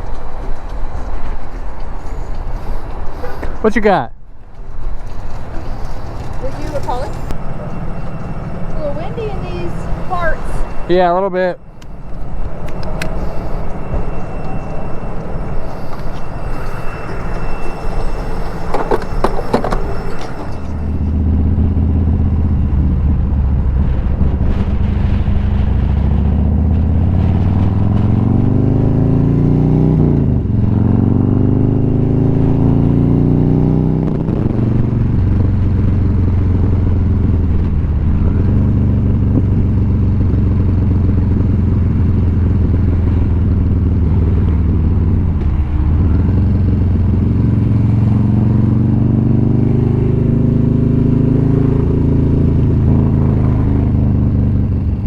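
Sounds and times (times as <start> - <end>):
wind on microphone: 4.6 - 55.0
motorcycle engine accelerating: 5.2 - 55.0.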